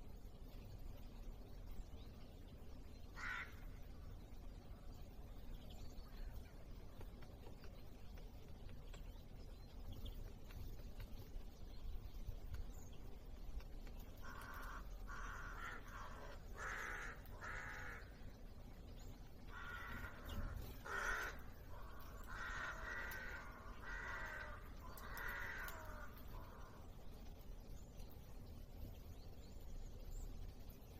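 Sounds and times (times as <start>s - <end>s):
bird harsh grating calls: 19.6s - 26.7s.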